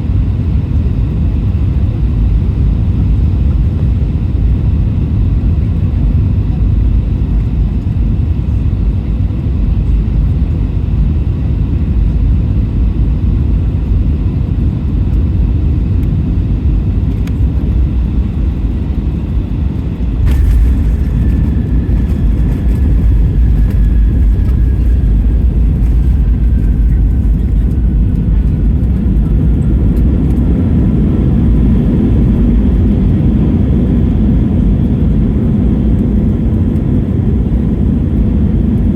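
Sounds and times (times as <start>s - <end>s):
engine and airflow rumble: 0.0s - 38.9s
faint falling whine: 17.1s - 33.8s.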